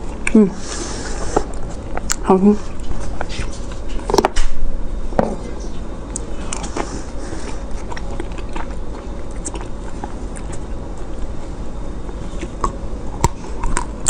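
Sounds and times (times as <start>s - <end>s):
biting and chewing ice cream: 1.2s - 4.4s, 6.1s - 14.0s.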